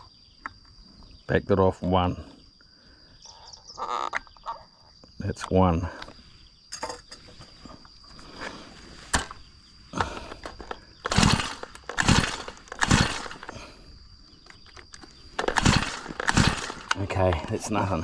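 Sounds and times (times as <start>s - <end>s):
recoil starter pulls: 8.2s - 13.8s, 14.4s - 18.0s.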